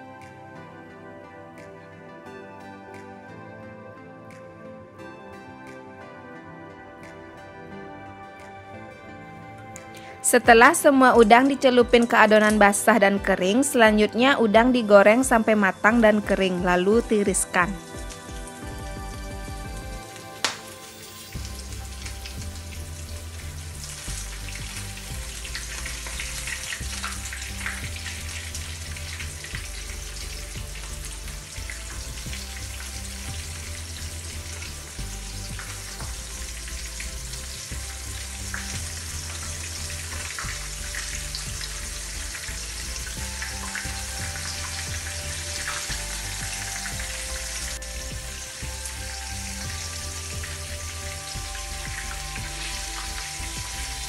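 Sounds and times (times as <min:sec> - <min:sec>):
shrimp frying in hot oil: 0:17.0 - 0:54.0.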